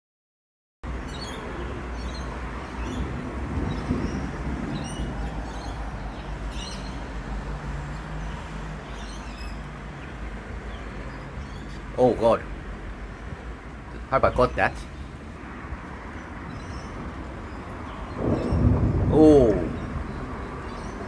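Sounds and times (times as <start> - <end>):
birds chirping: 0.9 - 21.0
low thunder rumbling: 2.7 - 6.5, 15.6 - 21.0.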